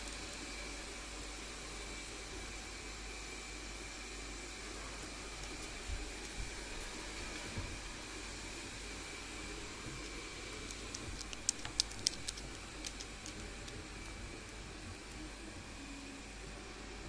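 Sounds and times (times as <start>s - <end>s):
steady background hiss: 0.0s - 17.0s
parrot beak clicks: 10.7s - 13.8s.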